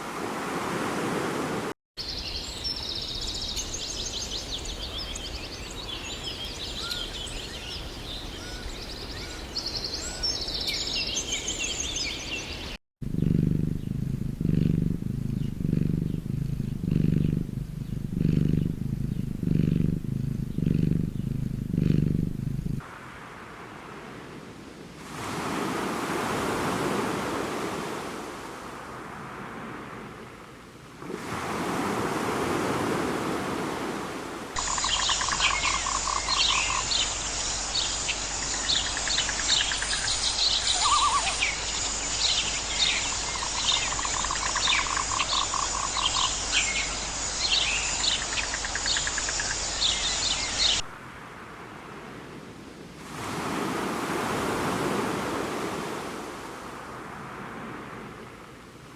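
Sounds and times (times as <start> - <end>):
birds chirping rapidly: 2.0 - 12.8, 13.6 - 22.2, 34.6 - 50.9
steady rushing noise: 13.0 - 26.7
fast-pulsed bird trills: 34.6 - 36.9, 42.4 - 50.8.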